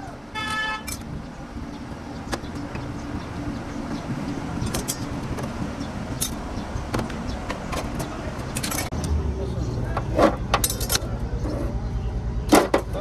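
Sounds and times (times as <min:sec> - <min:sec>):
low engine-like rumble: 0:00.0 - 0:13.0
sharp metallic clinks: 0:10.5 - 0:11.1.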